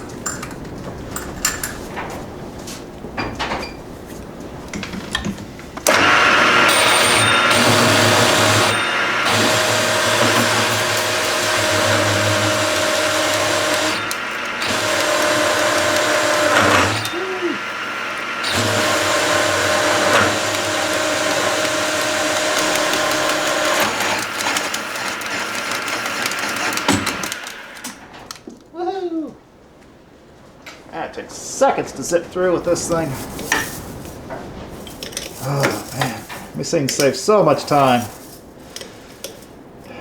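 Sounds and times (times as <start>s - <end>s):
magnetic drill cutting steel: 5.9s - 28.0s.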